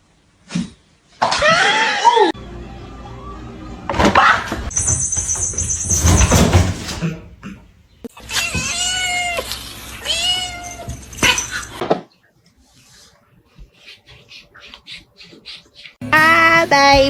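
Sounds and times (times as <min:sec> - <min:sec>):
cat meowing: 0:08.2 - 0:11.4.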